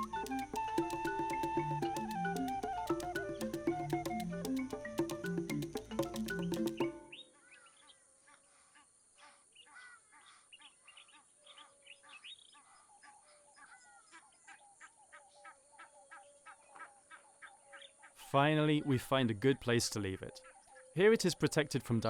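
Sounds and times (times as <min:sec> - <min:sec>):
steady high hiss: 0:00.0 - 0:03.9
faint bird chirps and whistles: 0:00.0 - 0:05.4.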